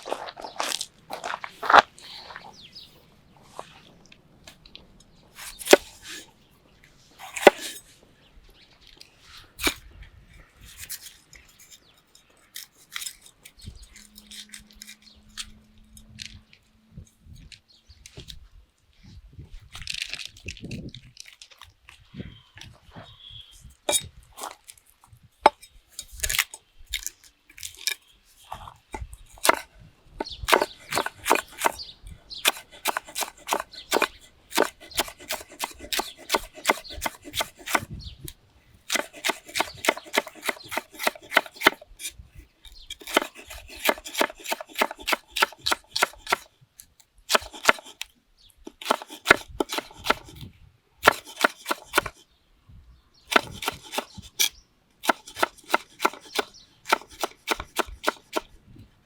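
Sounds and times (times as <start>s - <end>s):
knife chopping on cutting board: 30.5s - 31.8s, 32.5s - 37.9s, 38.9s - 41.8s, 43.0s - 46.4s, 48.7s - 50.3s, 51.1s - 52.1s, 55.0s - 58.4s.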